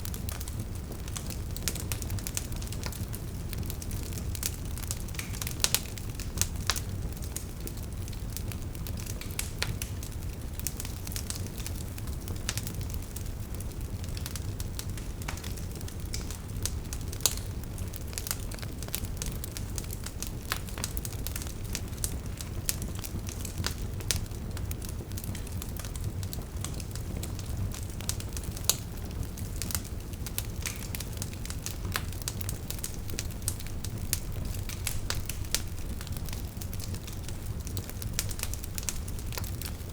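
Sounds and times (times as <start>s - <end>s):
burning logs popping: 0.0s - 39.9s
fire crackling: 0.0s - 39.9s
wood fire rumbling: 0.0s - 39.9s.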